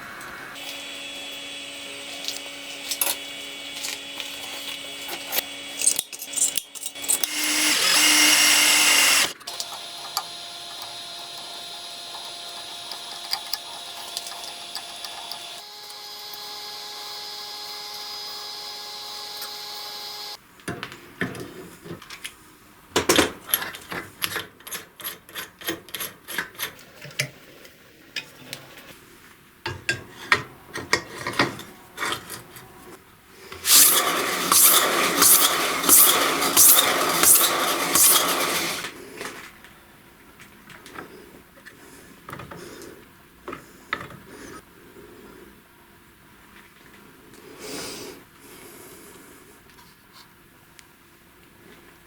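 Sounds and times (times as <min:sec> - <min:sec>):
power tools running: 0:00.5 - 0:20.4, 0:33.6 - 0:39.0
tool cutting into material: 0:00.6 - 0:16.4, 0:33.6 - 0:38.9.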